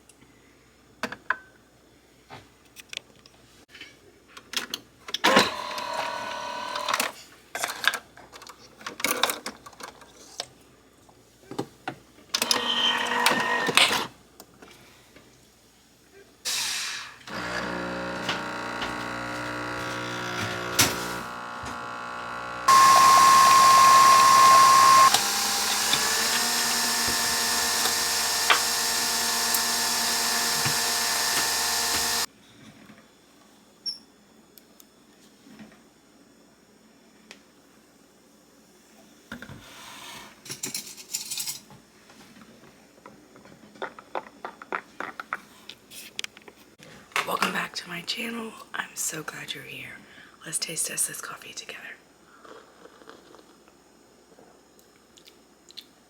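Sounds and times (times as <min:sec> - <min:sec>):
electric coffee appliance running: 0:05.3 - 0:07.1, 0:12.4 - 0:14.0, 0:16.5 - 0:32.3.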